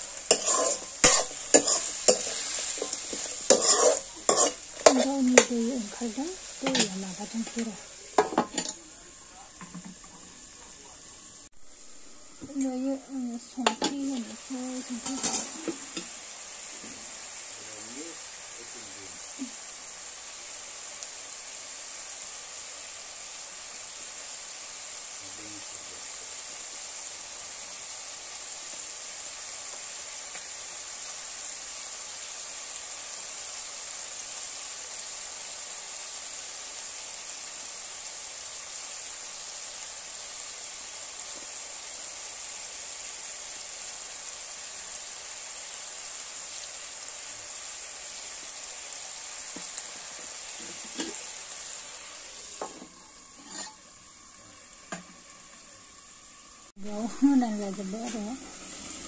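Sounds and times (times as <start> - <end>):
food sizzling in hot oil: 0.0 - 59.0
metal lid clanking on wok: 15.0 - 16.1.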